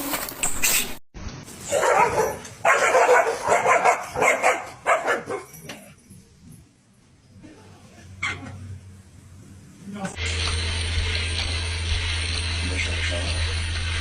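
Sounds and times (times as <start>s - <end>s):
dog barking: 1.7s - 5.6s.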